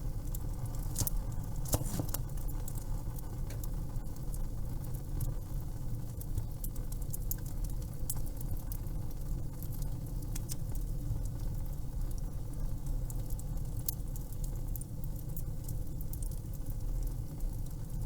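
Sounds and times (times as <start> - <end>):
fireplace crackling: 0.2 - 3.3.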